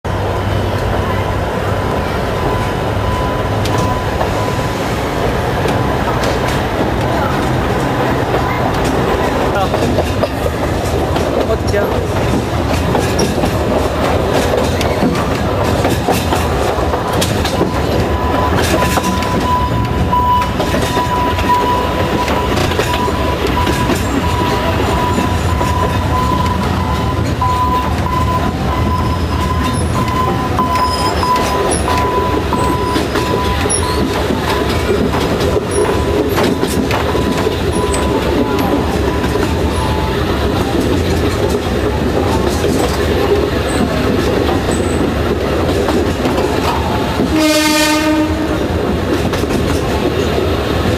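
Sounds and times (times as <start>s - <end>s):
train rumbling on rails: 0.0s - 50.9s
wheels clacking over rail joints: 0.1s - 50.9s
high-pitched tone: 17.6s - 34.9s.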